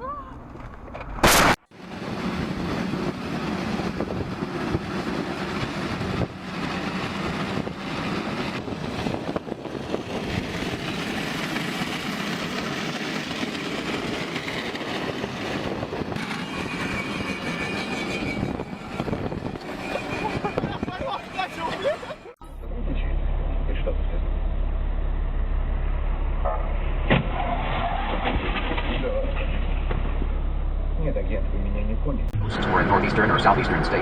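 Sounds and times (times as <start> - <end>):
vehicle engine and road rumble: 0.0 - 34.0
brief loud burst: 1.2 - 1.7.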